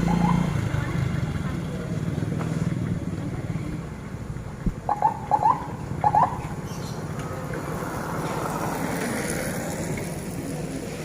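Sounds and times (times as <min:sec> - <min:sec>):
vehicle engine passing: 0:00.0 - 0:04.4.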